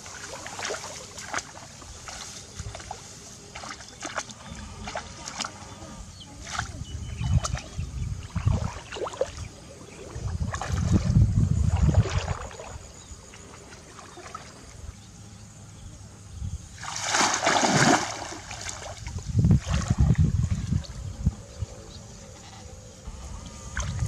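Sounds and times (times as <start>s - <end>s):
shallow water sloshing and splashing: 0.0s - 5.8s, 6.4s - 14.7s, 16.8s - 21.0s.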